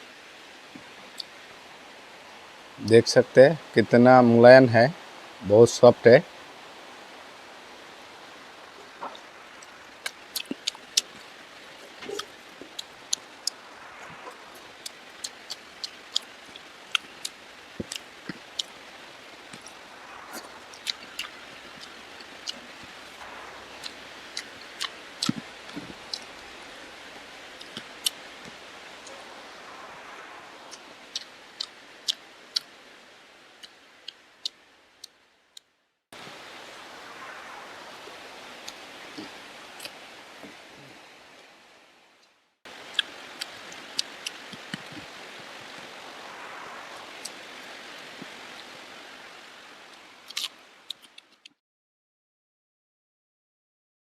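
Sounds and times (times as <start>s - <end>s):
rain hissing: 0.0s - 35.3s, 36.1s - 51.4s
chewing and lip-smacking: 10.0s - 13.6s, 14.2s - 18.8s, 23.8s - 26.4s, 42.9s - 45.1s.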